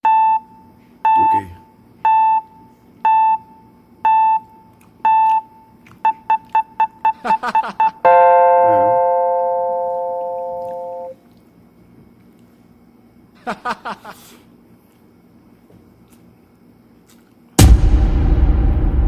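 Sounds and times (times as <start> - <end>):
electronic beeps: 5.0 - 11.1
sustained electronic chord: 8.1 - 11.2.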